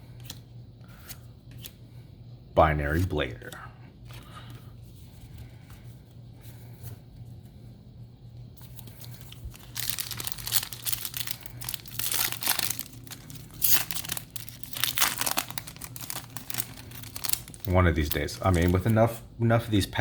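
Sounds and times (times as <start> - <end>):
low steady hum: 0.0 - 20.0
foil wrapper tearing and crinkling: 8.6 - 19.0.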